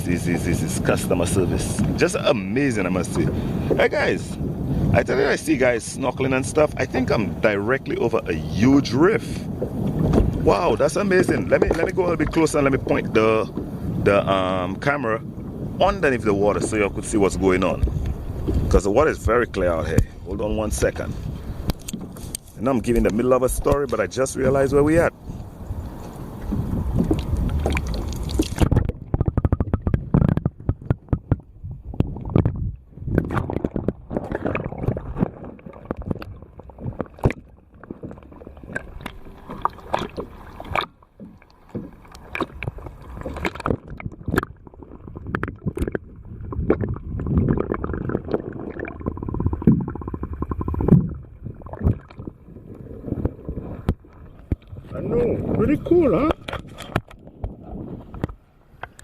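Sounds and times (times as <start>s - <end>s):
underwater sloshing and gurgling: 0.0s - 59.0s
underwater clicks and knocks: 9.6s - 13.7s, 17.5s - 18.8s, 21.6s - 24.0s, 26.4s - 59.0s.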